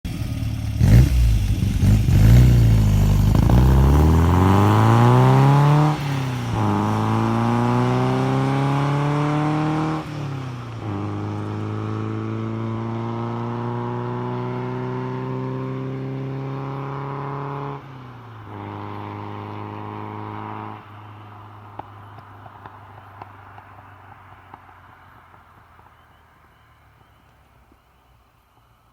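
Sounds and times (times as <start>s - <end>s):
car engine accelerating hard: 0.1s - 17.9s.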